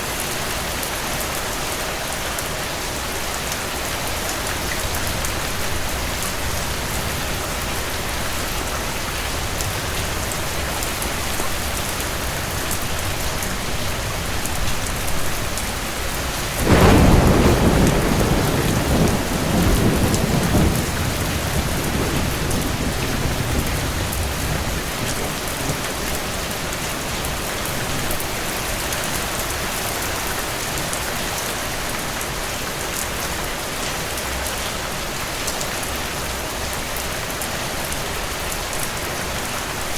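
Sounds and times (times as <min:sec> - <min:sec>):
heavy rain falling: 0:00.0 - 0:39.9
thunder clap rumbling: 0:09.2 - 0:29.0.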